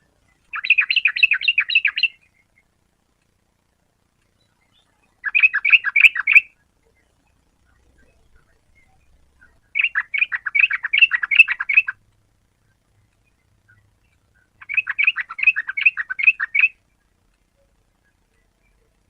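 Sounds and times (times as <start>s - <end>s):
bird bubbling chattering song: 0.2s - 2.7s, 4.4s - 12.0s, 13.0s - 17.2s.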